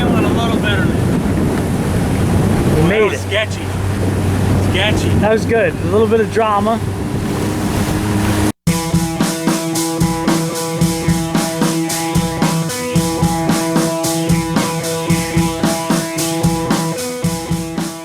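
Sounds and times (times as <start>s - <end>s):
rock music with drums and guitar: 8.6s - 18.0s.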